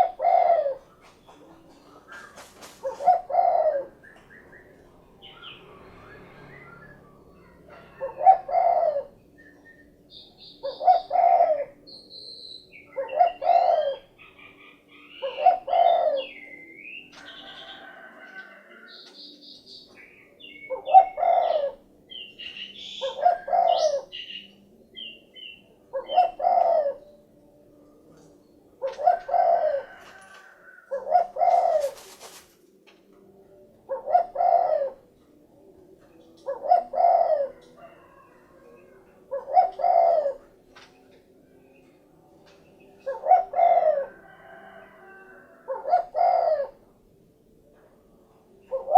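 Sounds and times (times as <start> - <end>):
dove cooing: 0.0 - 11.9, 12.7 - 19.0, 20.5 - 27.3, 28.0 - 32.5, 33.3 - 40.9, 43.0 - 47.0, 48.6 - 48.9
brief rustle: 31.8 - 32.7.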